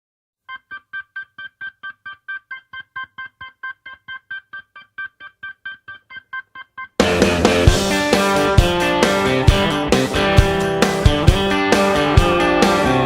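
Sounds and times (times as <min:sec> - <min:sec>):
repeated electric keyboard note: 0:05.0 - 0:13.0.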